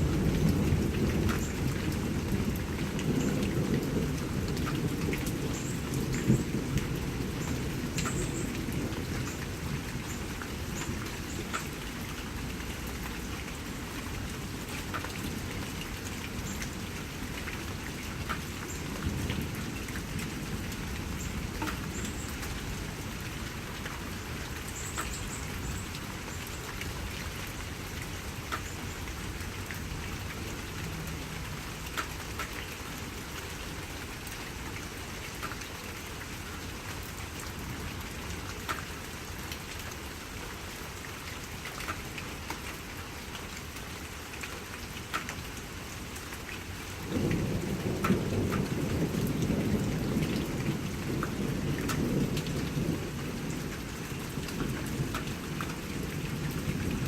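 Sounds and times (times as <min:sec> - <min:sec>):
raindrops dripping: 0:00.0 - 0:57.0
steady rain: 0:00.0 - 0:57.0
rolling thunder: 0:47.1 - 0:57.0.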